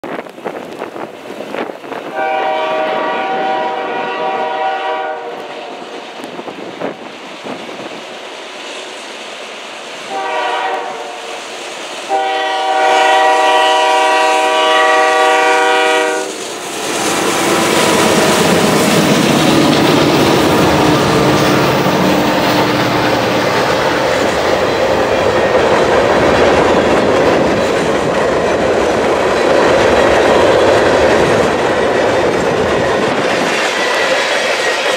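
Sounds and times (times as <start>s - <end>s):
wind noise: 0.0s - 4.4s, 5.3s - 8.4s, 13.4s - 34.9s
diesel locomotive engines passing: 0.0s - 34.9s
locomotive air horn blasts: 2.1s - 5.8s, 10.1s - 11.4s, 12.1s - 16.4s
train wheels clattering on rail joints: 11.5s - 34.9s.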